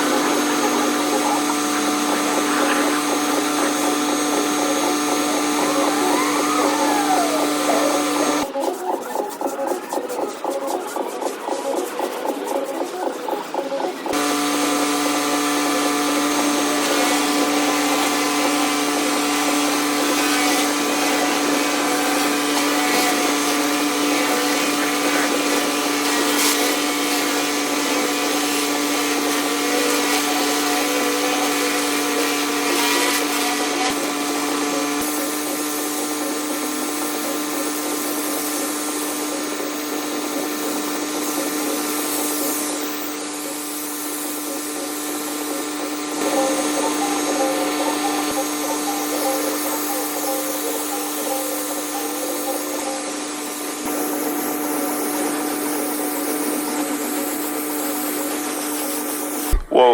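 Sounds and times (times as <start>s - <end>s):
pressure washer hum: 0.0s - 59.8s
high-pressure water spray hiss: 35.0s - 59.5s.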